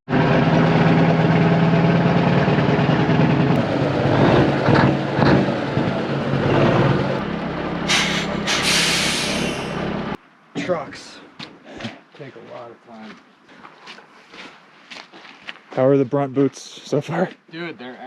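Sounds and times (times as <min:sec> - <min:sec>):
diesel truck engine running: 0:00.1 - 0:10.2
short air hisses: 0:07.9 - 0:09.8.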